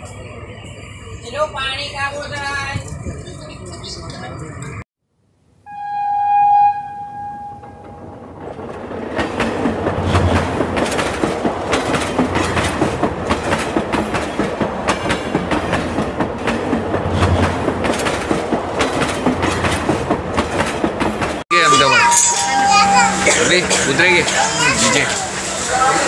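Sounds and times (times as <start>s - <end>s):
train horn: 5.7s - 8.0s
train wheels clattering over rail joints: 8.4s - 21.4s.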